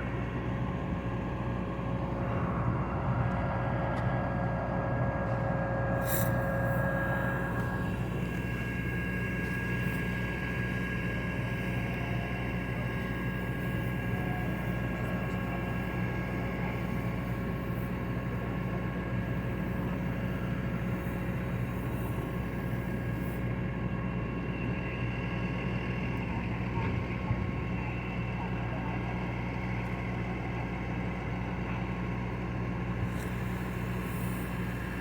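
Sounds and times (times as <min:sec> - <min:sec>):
engine droning: 0:00.0 - 0:35.0
steady whining tones: 0:00.0 - 0:35.0.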